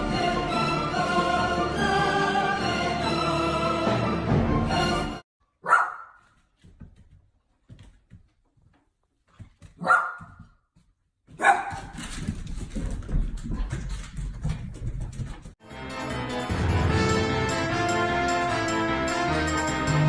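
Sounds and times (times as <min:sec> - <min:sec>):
dog barking: 0:05.6 - 0:06.4, 0:09.8 - 0:10.5, 0:11.3 - 0:11.9.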